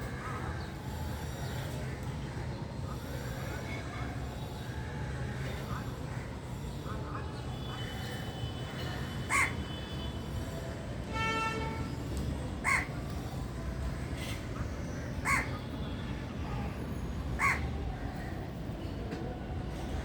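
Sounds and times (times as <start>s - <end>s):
crow cawing: 9.3s - 9.5s, 12.6s - 12.9s, 15.2s - 15.5s, 17.4s - 18.3s.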